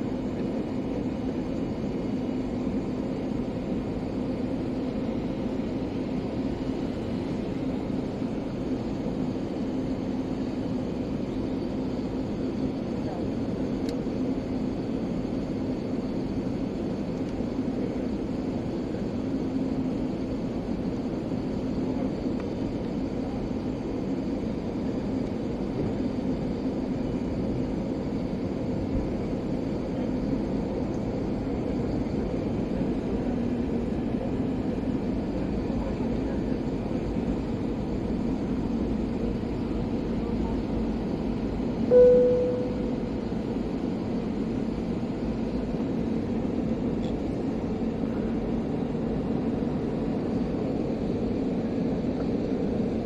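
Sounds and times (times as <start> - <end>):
airliner engine and airflow drone: 0.0 - 53.0
faint low hum: 41.9 - 43.3.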